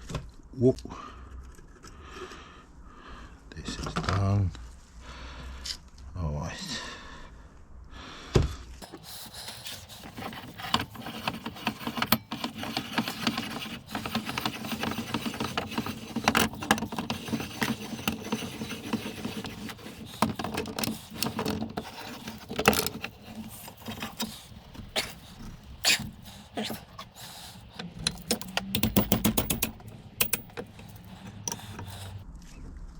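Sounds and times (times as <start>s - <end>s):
metal tools clinking and scraping: 8.8s - 32.2s.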